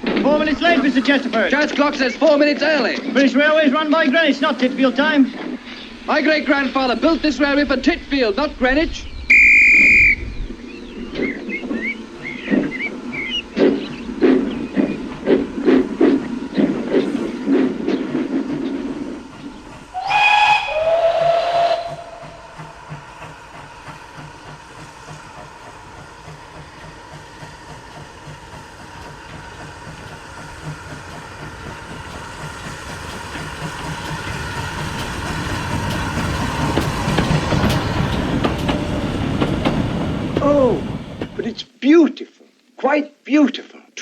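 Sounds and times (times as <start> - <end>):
locomotive exhaust beat: 0.0 - 41.5
steam hissing: 0.0 - 41.5
steam whistle blast: 9.3 - 10.2, 20.0 - 22.4.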